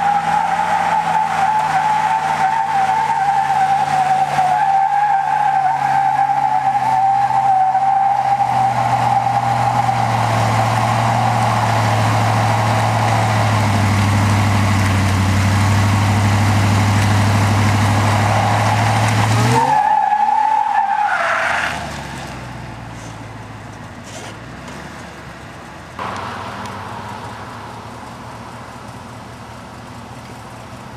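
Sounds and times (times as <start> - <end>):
tyres squealing: 0.0 - 14.3, 16.2 - 21.9
engine revving high: 15.5 - 20.0
engine idling: 25.0 - 30.9.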